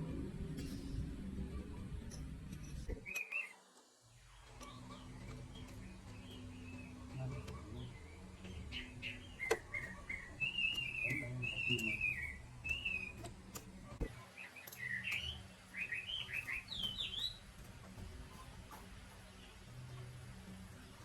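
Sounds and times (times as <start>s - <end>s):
bird singing: 1.5s - 3.6s, 4.2s - 21.0s
sharp clicks: 9.3s - 17.3s.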